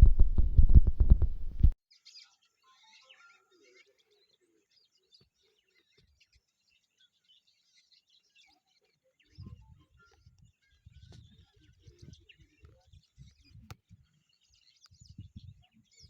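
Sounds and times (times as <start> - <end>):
low rumble: 0.0 - 1.8
small birds chirping: 0.0 - 16.0.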